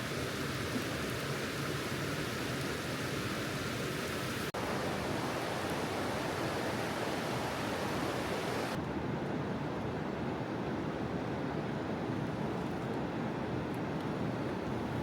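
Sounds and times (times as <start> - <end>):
mountain stream rushing: 0.0 - 8.8
rain: 0.0 - 8.8.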